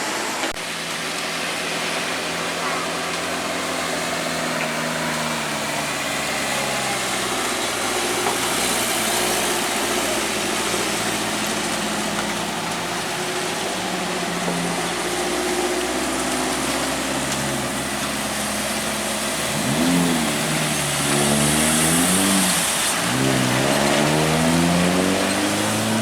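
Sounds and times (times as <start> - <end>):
road noise: 0.0 - 26.0
truck engine running: 0.0 - 26.0.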